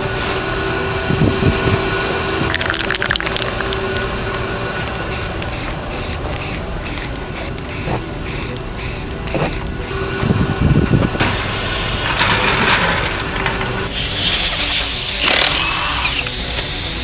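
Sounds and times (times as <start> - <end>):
hissing spray bursts: 0.0 - 17.0
rattle of clicks: 2.4 - 4.1, 11.2 - 17.0.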